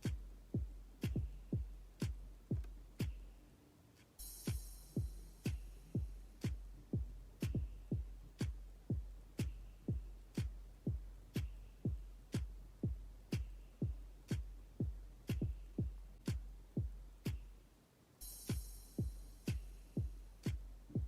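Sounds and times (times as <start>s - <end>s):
sharp clap: 0.0s - 0.2s, 1.0s - 1.3s, 6.4s - 6.6s, 16.2s - 16.5s
deep kick drum: 0.0s - 3.3s, 4.2s - 17.5s, 18.2s - 21.0s
electronic music with beat: 0.0s - 3.4s, 4.2s - 17.6s, 18.2s - 21.0s.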